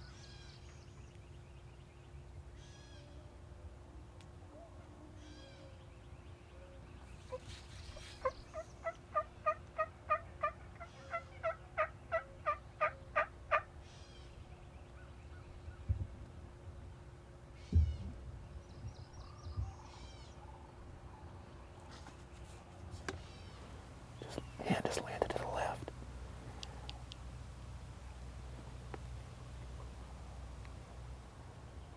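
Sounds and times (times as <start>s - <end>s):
rattly gobble calls: 7.3s - 13.7s, 23.2s - 31.9s
wild turkey yelping: 7.3s - 13.7s, 23.2s - 31.7s.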